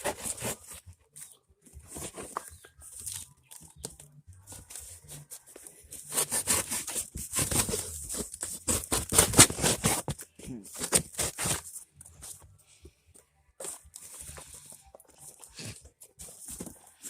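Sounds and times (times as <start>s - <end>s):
material rasping and snipping: 4.6s - 10.2s.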